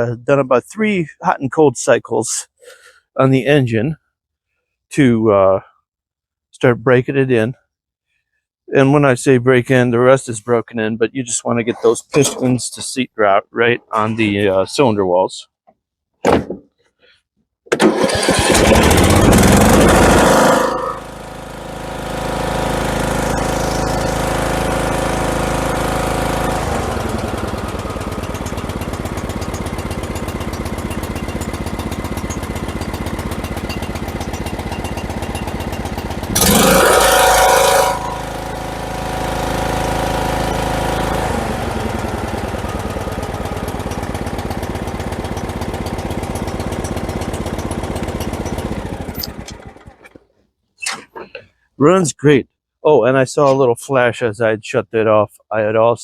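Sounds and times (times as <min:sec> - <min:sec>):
lawn tractor engine running: 0:17.7 - 0:50.2.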